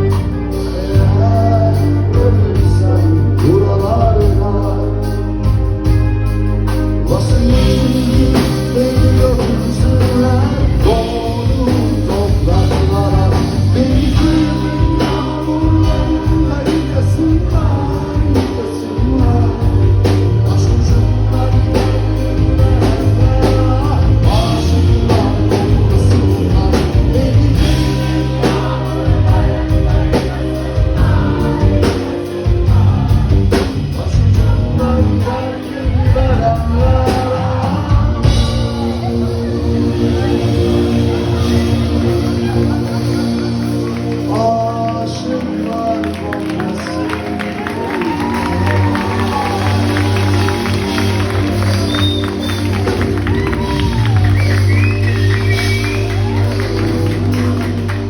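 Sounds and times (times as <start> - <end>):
bass: 0.0 - 58.0
live band playing: 0.0 - 58.0
person singing: 0.0 - 58.0
drum beat: 47.3 - 58.0.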